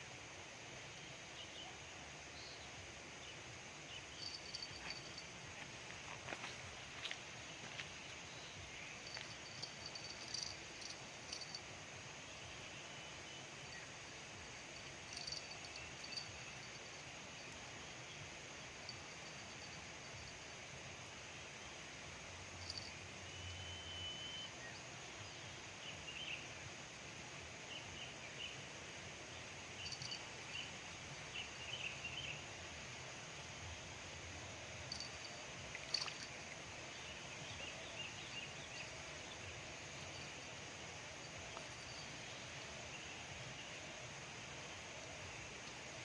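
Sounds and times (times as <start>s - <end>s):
faint high chirps: 3.8s - 5.4s, 7.0s - 20.6s, 22.6s - 25.0s, 34.8s - 44.0s.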